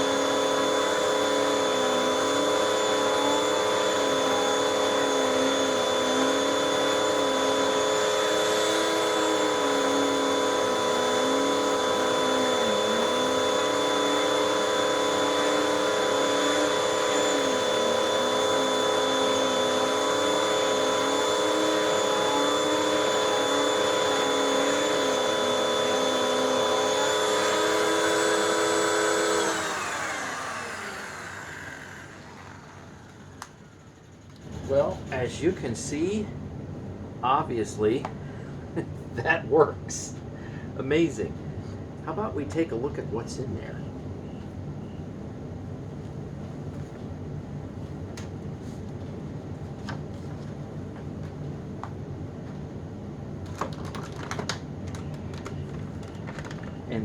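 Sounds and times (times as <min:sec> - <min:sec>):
vacuum cleaner motor whine: 0:00.0 - 0:36.3.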